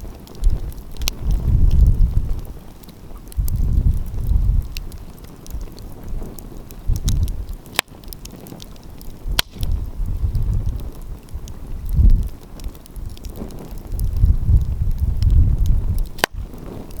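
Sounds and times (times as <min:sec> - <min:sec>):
wind rumbling on microphone: 0:00.0 - 0:17.0
wood fire crackling: 0:00.0 - 0:17.0
sharp loud pops: 0:09.3 - 0:09.8, 0:16.1 - 0:16.5.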